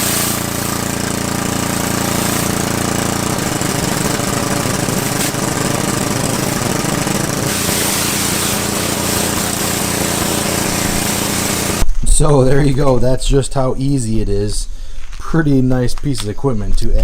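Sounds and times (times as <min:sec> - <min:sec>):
pressure washer pump humming: 0:00.0 - 0:11.9
water spraying hard: 0:00.0 - 0:11.9.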